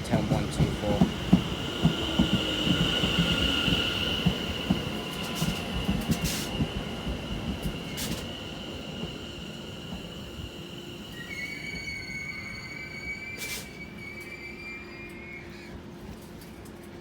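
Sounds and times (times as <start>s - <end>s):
high-pitched brake squeal: 11.1s - 15.8s.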